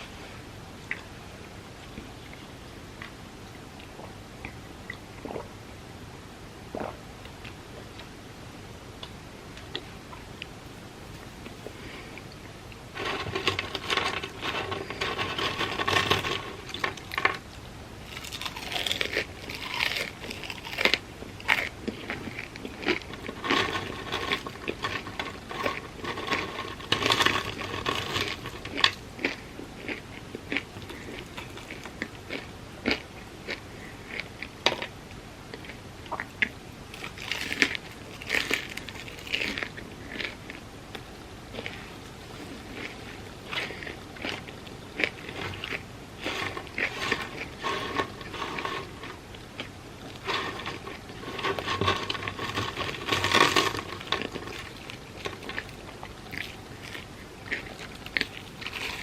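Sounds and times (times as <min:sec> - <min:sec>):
crunchy bites of fried food: 0:18.0 - 0:34.9, 0:36.9 - 0:40.5.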